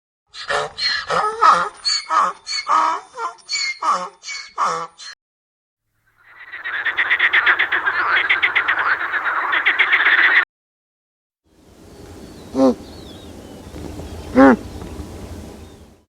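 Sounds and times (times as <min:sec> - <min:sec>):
frogs croaking: 0:06.0 - 0:10.4.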